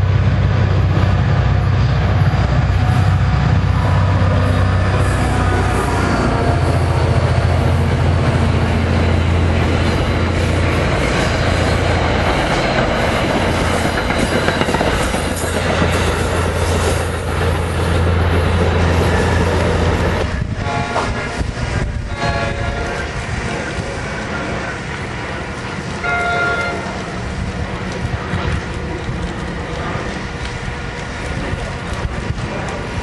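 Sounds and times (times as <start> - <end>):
diesel engine drone: 0.0 - 14.1
train wheels clattering on rails: 0.0 - 33.0.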